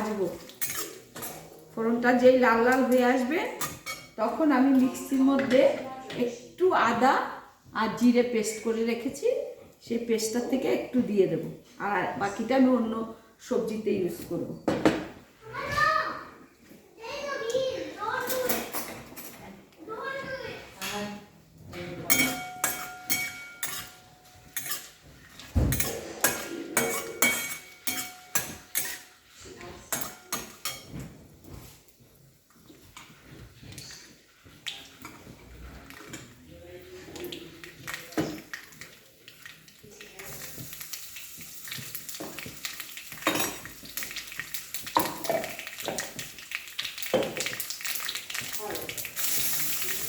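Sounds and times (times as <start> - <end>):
spices frying in oil: 0.0 - 1.4, 22.0 - 50.0
spatula scraping a pan: 0.4 - 1.6, 21.7 - 31.9, 32.5 - 38.0
metal spoon clinking against pan: 0.6 - 1.4, 3.6 - 4.2, 22.1 - 25.0, 25.7 - 29.2, 29.9 - 31.0.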